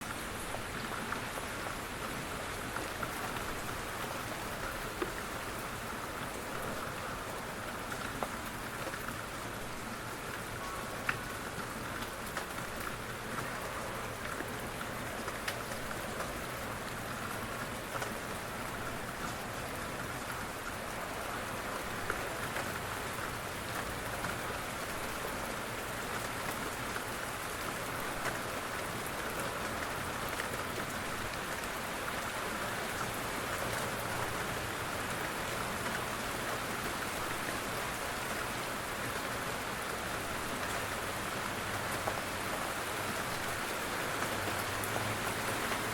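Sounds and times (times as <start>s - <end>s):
raindrops ticking: 10.2s - 24.6s.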